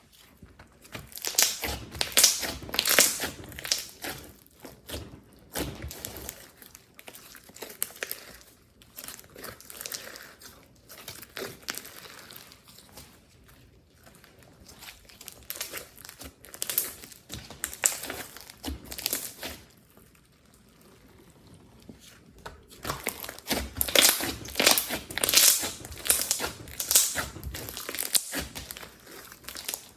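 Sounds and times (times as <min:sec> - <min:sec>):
slime squeezed by hand: 0:01.1 - 0:04.2, 0:22.6 - 0:29.9.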